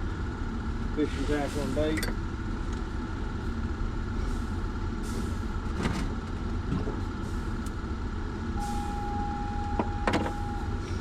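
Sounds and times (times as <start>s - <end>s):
low machinery rumble: 0.0s - 11.0s
faint high tone: 8.6s - 10.8s.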